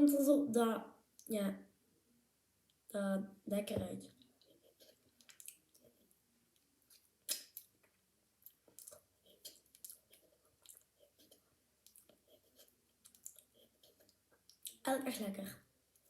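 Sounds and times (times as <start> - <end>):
wet lip smacks: 6.9 - 7.7.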